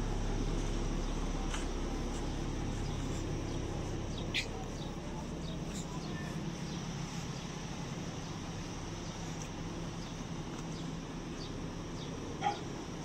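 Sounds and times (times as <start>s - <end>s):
steady low hum: 0.0s - 13.0s
bird chirps: 2.7s - 7.5s.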